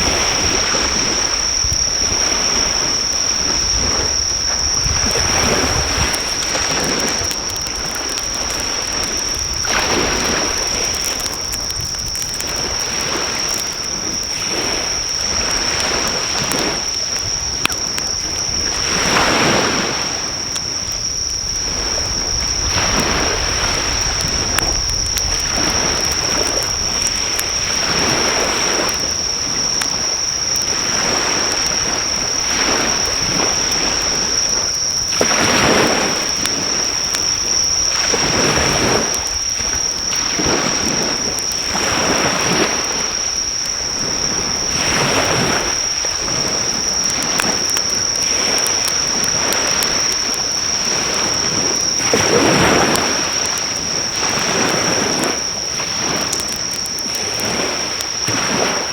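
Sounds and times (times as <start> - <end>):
campfire crackling: 0.0 - 58.9
high-pitched insect trill: 0.0 - 58.9
sea waves washing ashore: 0.0 - 58.9.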